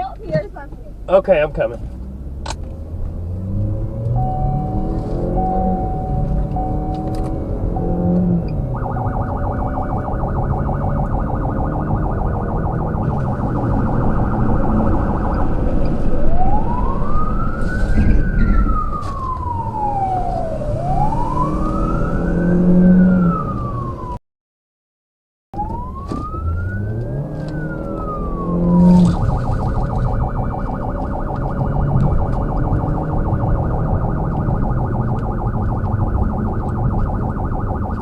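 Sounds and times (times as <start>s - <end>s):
emergency siren: 3.4s - 24.2s, 25.6s - 38.0s
vehicle engine running: 4.1s - 20.1s, 26.7s - 38.0s.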